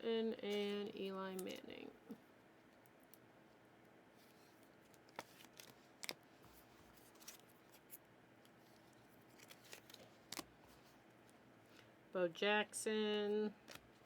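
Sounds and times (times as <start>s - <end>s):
cards clicking and snipping: 9.3s - 10.5s.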